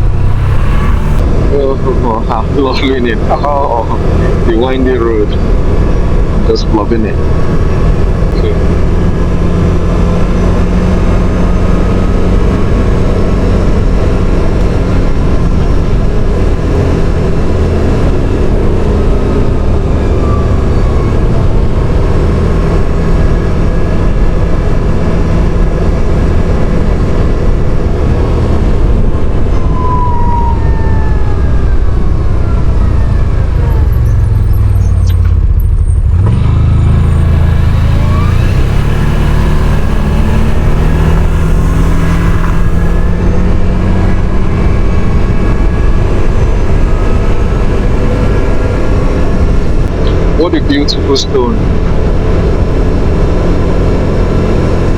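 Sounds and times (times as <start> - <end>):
quad bike engine rumble: 0.0 - 54.9
road noise: 0.0 - 54.9.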